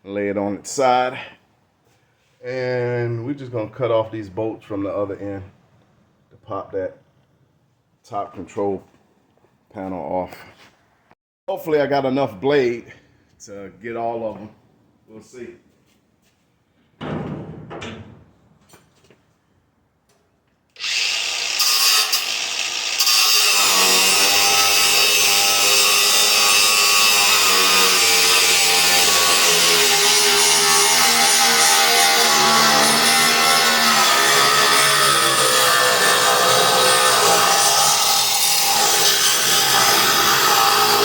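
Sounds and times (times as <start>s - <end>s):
reciprocating saw cutting metal: 20.8s - 41.0s.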